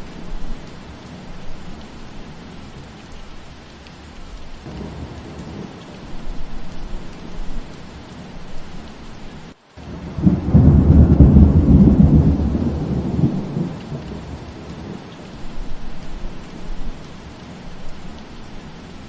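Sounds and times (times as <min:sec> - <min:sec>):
steady rain: 0:00.0 - 0:19.0
thunder rumbling: 0:04.6 - 0:08.6, 0:09.8 - 0:16.8.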